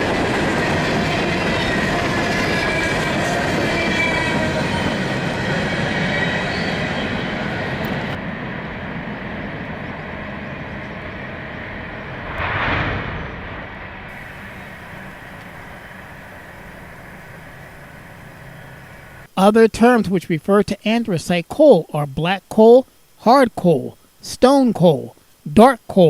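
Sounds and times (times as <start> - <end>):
train rumble: 0.0 - 19.3
train wheels squealing: 0.7 - 8.1
brief burst of noise: 12.2 - 19.3.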